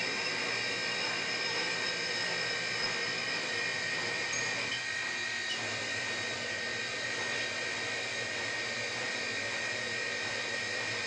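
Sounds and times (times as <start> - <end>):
lathe machine whirr: 0.0 - 11.0
high whining tones: 0.4 - 6.8.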